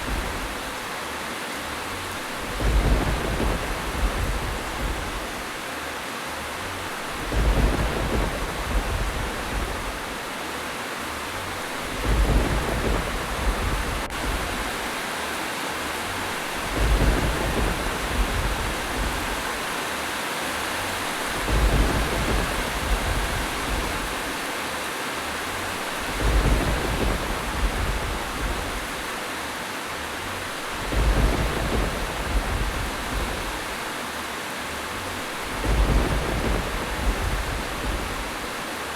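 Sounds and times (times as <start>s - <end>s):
steady rain hiss: 0.0s - 38.9s
low rumble: 2.3s - 5.6s, 6.8s - 10.3s, 11.5s - 14.9s, 16.5s - 19.7s, 21.3s - 24.4s, 26.0s - 29.1s, 30.6s - 33.9s, 35.1s - 38.8s.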